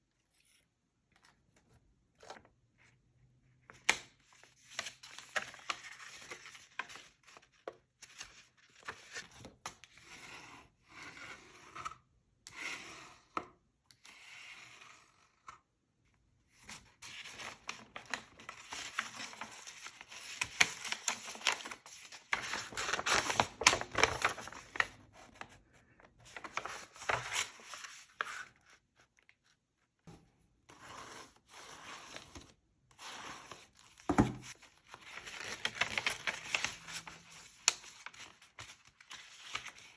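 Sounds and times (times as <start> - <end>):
paper rustling and tearing: 17.0 - 25.5, 26.2 - 29.4.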